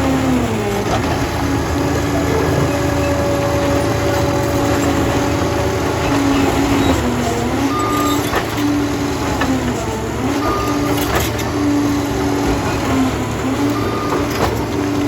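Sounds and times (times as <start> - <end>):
dozer diesel engine rumbling: 0.0 - 15.0
engine whine shifting pitch: 0.0 - 15.0.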